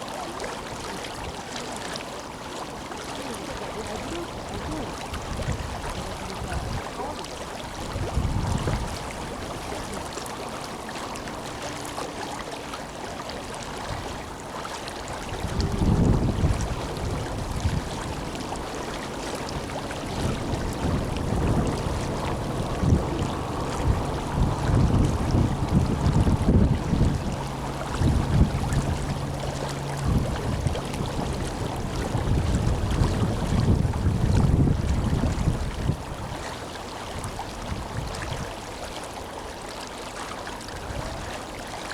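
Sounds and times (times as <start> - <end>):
river water rushing: 0.0 - 41.9
water splashes: 0.0 - 41.9
wind buffeting microphone: 3.8 - 39.0
low rumbling: 15.2 - 36.4.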